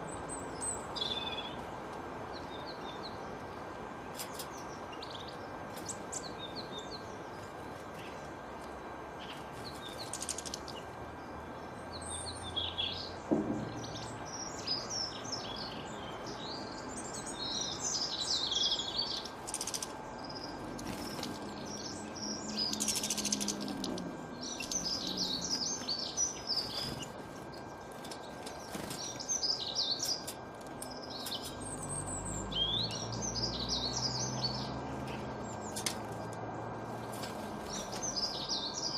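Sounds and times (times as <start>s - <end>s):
canary singing: 11.6s - 36.3s, 37.6s - 38.9s.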